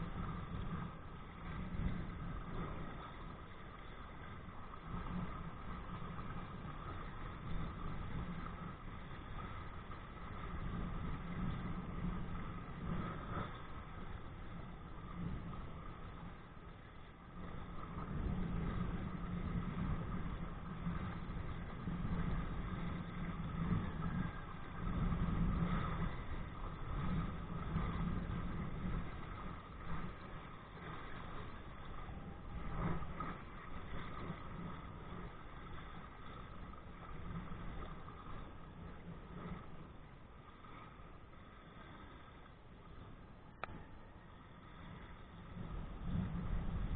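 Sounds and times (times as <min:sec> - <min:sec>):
wind rushing on microphone: 0:00.0 - 0:46.9.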